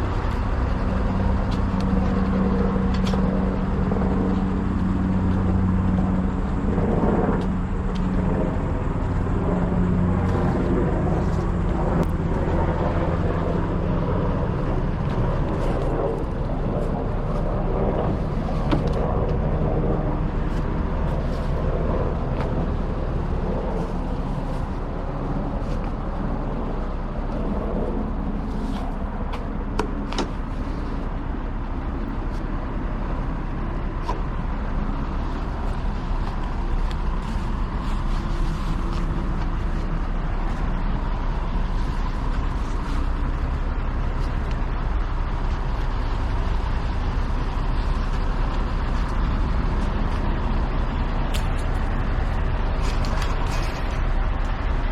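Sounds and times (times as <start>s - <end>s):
truck engine and road rumble: 0.0s - 54.9s.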